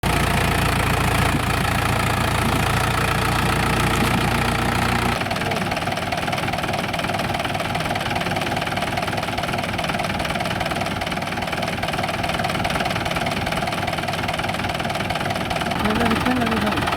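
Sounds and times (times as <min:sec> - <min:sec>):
tractor diesel engine knocking: 0:00.0 - 0:16.9.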